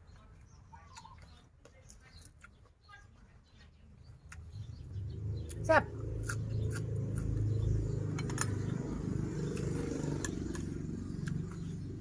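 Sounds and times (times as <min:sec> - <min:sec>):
chewing and mouth noises: 0:05.4 - 0:12.0.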